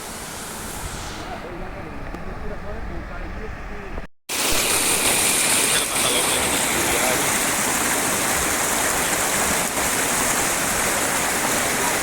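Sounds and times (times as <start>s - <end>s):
waterfall rushing: 4.3s - 12.0s.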